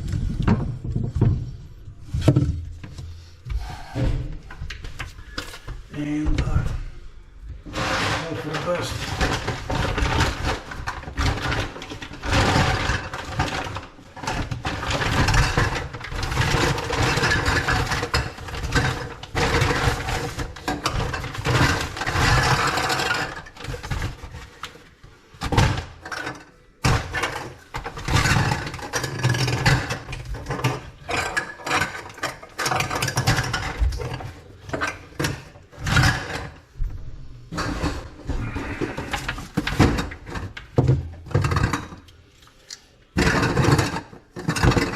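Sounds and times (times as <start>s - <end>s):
tools clattering on drain pipe: 7.7s - 24.7s, 25.4s - 36.6s, 37.5s - 42.1s.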